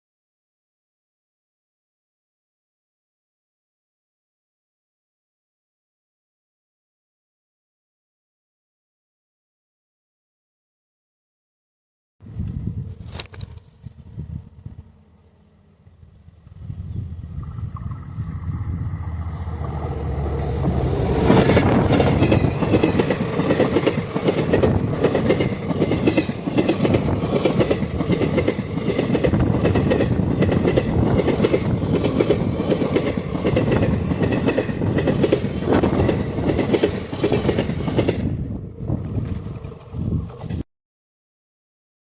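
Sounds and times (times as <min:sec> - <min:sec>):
train wheels clattering: 0:19.5 - 0:38.4.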